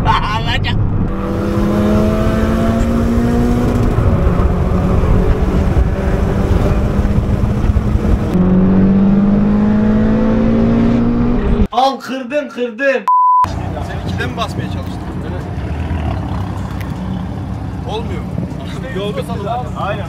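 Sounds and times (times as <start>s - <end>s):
road and wind noise: 0.0s - 11.7s, 13.5s - 20.0s
car engine accelerating hard: 0.9s - 11.7s.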